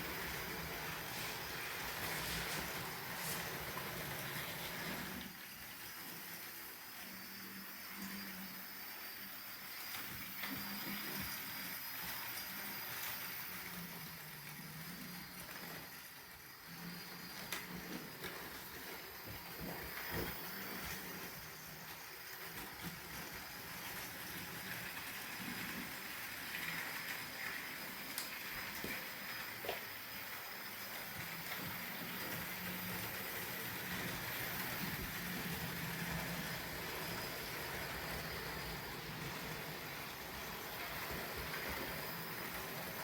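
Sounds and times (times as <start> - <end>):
model train motor whine: 0.0 - 43.0
wheels clicking on rails: 10.0 - 43.0.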